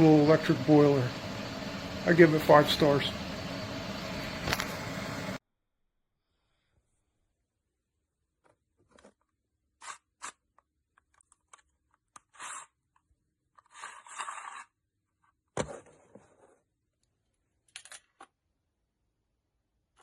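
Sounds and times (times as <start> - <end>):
handling scrapes and rustles: 13.6 - 14.8.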